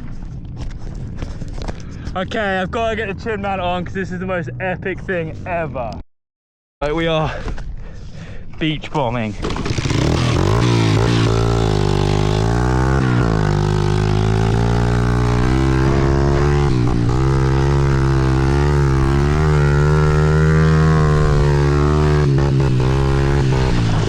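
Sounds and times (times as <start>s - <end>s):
dirt bike engine revving: 9.4s - 24.0s.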